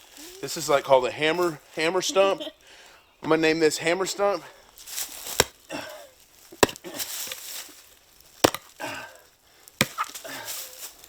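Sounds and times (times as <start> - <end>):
wooden knocks on tree stump: 6.6 - 7.4, 8.4 - 8.7.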